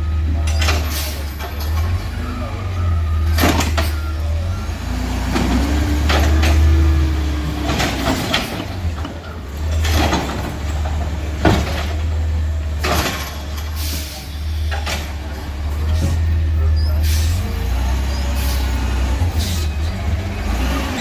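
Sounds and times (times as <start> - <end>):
garbage truck engine rumbling: 0.0 - 21.0
sharp clanks or hisses: 12.8 - 15.1.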